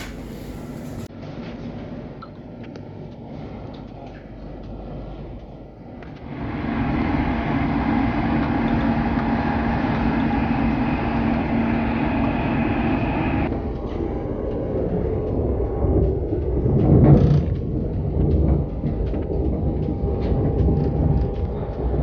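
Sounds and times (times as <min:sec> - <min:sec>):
high-pitched train whine: 0:00.0 - 0:01.1, 0:06.2 - 0:22.0
train running inside carriage: 0:00.0 - 0:02.2, 0:03.0 - 0:22.0.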